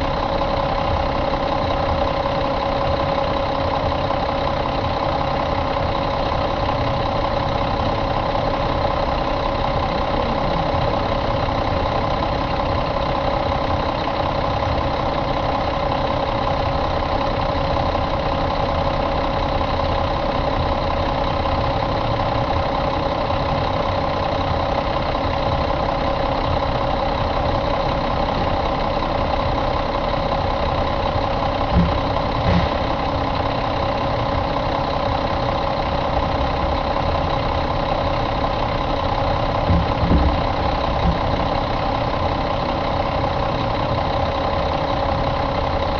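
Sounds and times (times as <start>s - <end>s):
diesel engine idling: 0.0s - 45.9s
low thumps: 31.7s - 33.0s, 39.6s - 41.6s.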